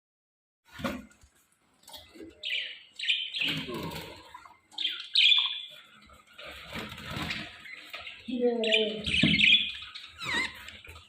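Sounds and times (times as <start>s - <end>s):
parrots screeching: 2.4s - 5.8s, 7.0s - 11.0s.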